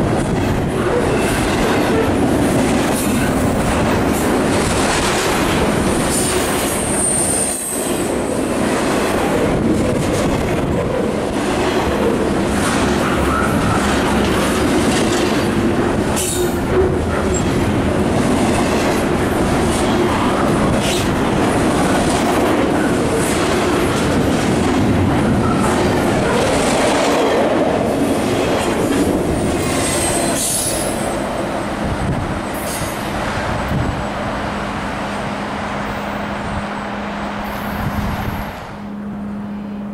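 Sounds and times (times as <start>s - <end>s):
train wheels clattering on rails: 0.0s - 34.0s
high-pitched wheel squeal: 6.8s - 7.8s.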